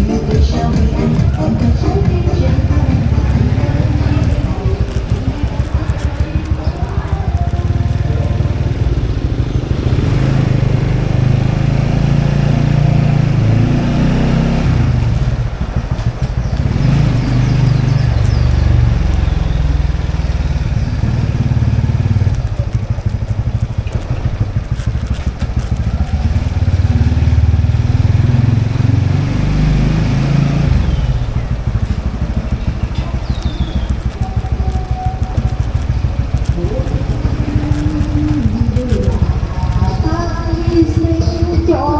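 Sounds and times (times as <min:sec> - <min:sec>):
motorbike engine revving: 0:00.0 - 0:41.9.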